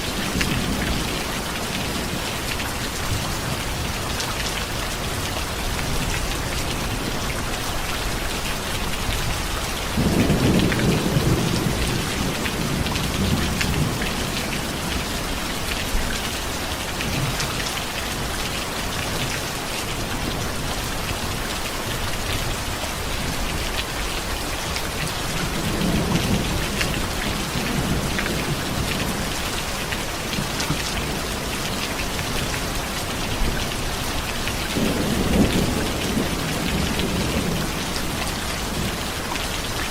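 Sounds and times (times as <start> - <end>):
heavy rain hissing: 0.0 - 39.9
thunder rumbling: 9.9 - 15.0.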